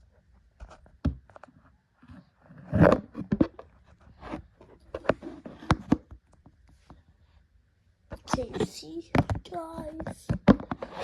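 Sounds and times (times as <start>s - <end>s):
toy trucks knocking and scraping: 8.2s - 11.0s.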